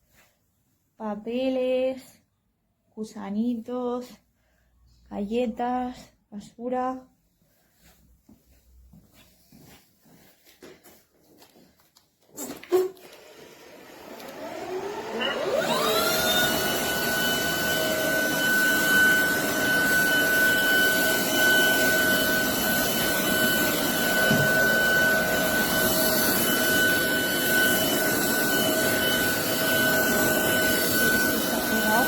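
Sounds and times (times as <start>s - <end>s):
vacuum cleaner motor whine: 13.0s - 32.0s.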